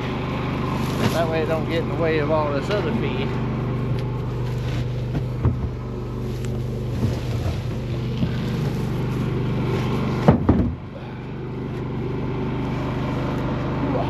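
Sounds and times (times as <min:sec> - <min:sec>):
vehicle engine idling: 0:00.0 - 0:14.0
loud knocks and thumps: 0:05.1 - 0:05.8, 0:10.2 - 0:10.8.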